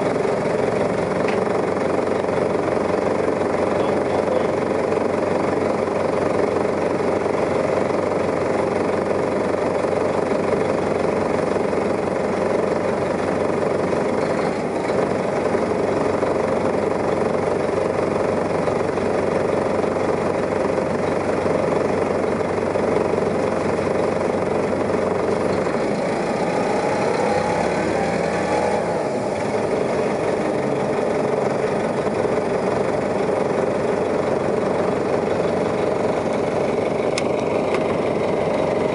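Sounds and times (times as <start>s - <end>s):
bus engine running: 0.0s - 38.9s
rising whine: 22.4s - 32.4s.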